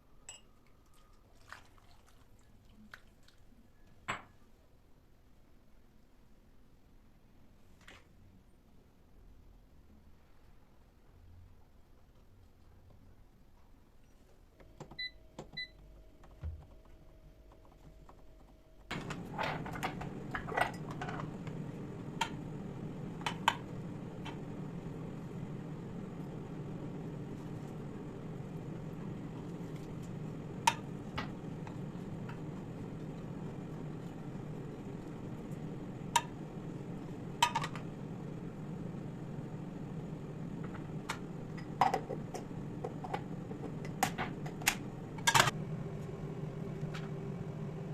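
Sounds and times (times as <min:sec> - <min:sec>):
kitchen appliance humming: 0:18.9 - 0:47.9.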